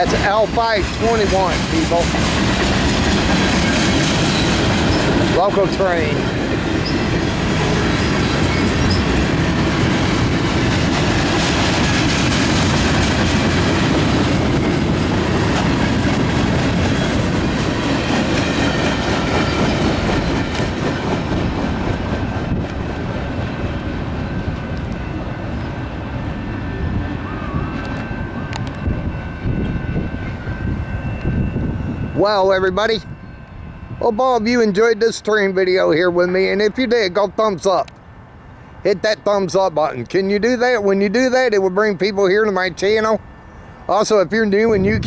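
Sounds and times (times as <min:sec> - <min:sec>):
train wheels clicking over rail joints: 0:00.0 - 0:27.1.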